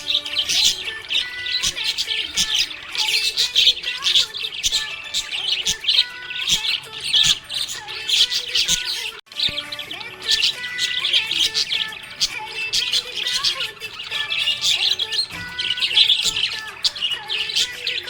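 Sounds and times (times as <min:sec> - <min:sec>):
budgies chirping and warbling: 0:00.0 - 0:18.0.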